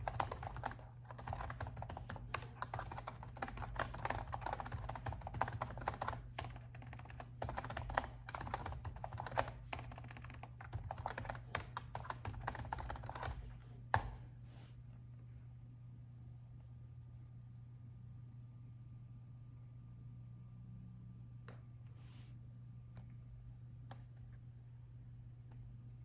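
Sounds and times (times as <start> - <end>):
rapid typing on laptop keyboard: 0.0 - 14.2.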